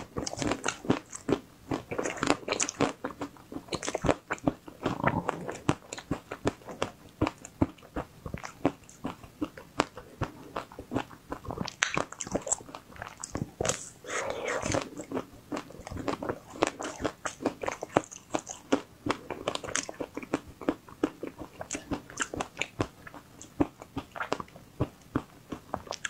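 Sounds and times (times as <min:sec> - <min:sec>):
crunchy chewing: 0:00.0 - 0:26.0
wet mouth clicks: 0:03.8 - 0:06.9, 0:09.8 - 0:18.8.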